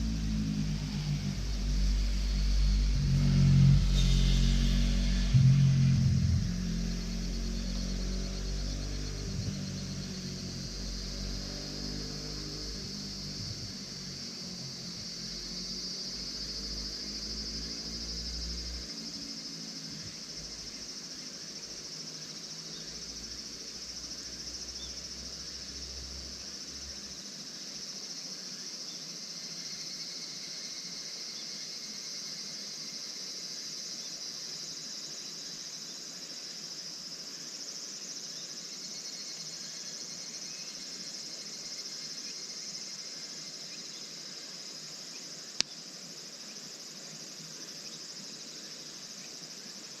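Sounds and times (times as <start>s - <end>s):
low rumble: 0.0s - 17.0s
crickets chirring: 0.0s - 50.0s.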